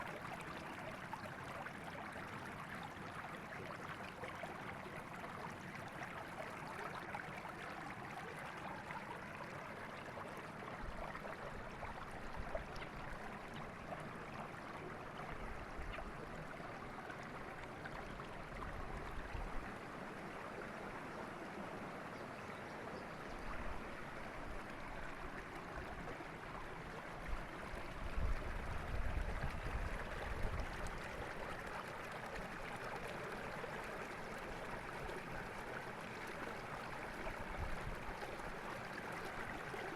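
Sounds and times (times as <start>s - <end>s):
river water flowing over rocks: 23.8s - 39.9s.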